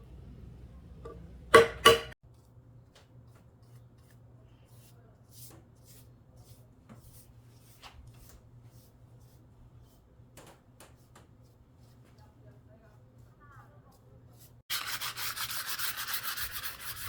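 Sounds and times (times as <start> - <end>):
steady low hum: 0.0 - 2.2.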